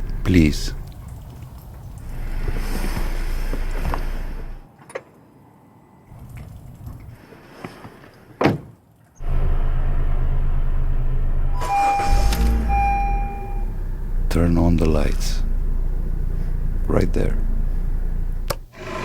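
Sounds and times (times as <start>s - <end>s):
car engine humming: 0.0s - 4.6s, 9.2s - 19.0s.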